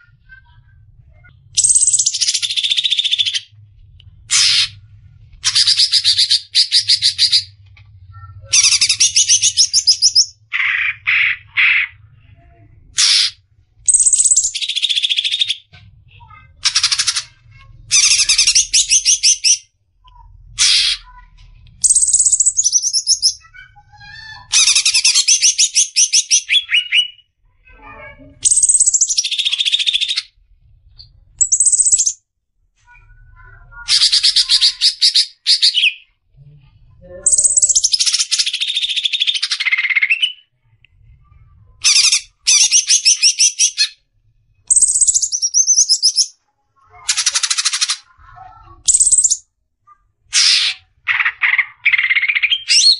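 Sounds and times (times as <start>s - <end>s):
bird singing trills and whistles: 1.6s - 3.5s, 13.9s - 15.7s, 21.8s - 27.3s, 28.4s - 30.3s, 31.4s - 32.2s, 37.2s - 40.5s, 41.8s - 44.0s, 44.7s - 46.4s, 48.8s - 49.4s, 51.4s - 52.9s.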